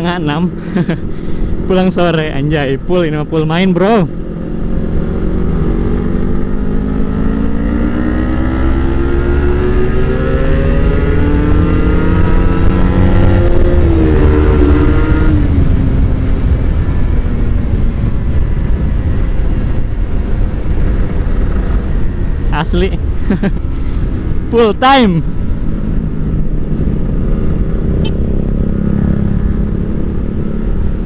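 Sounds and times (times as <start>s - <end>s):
motorcycle engine accelerating: 0.0s - 31.0s
low rumble: 12.4s - 31.0s.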